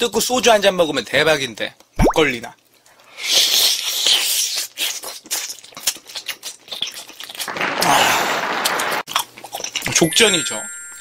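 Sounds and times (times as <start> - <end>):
chewing with sticky smacking clicks: 4.0 - 7.6, 9.1 - 9.9.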